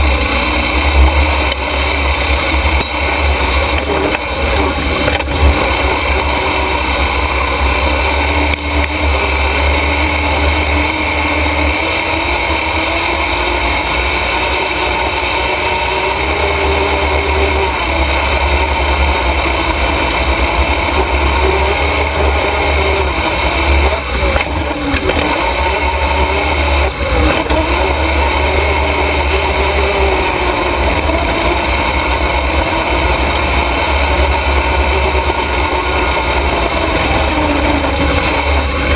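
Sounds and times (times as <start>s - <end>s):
heavy low rumble: 0.0s - 10.7s
race truck motor running: 0.0s - 38.9s.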